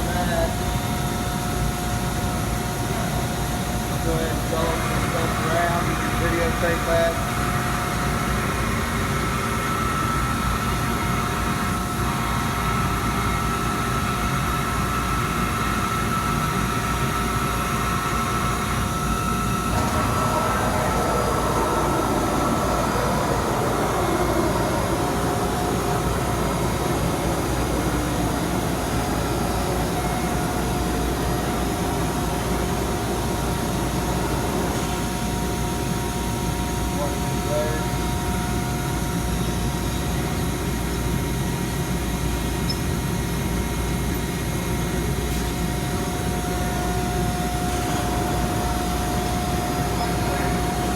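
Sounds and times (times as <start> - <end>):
laser cutter machine hum: 0.0 - 50.9
whine falling in pitch: 18.9 - 31.6.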